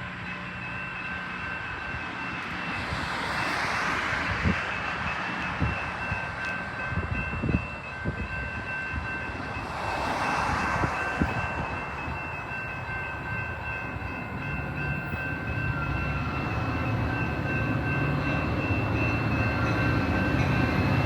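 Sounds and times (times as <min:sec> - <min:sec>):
train rumbling past: 0:00.0 - 0:21.0
high ringing tones: 0:04.2 - 0:21.0.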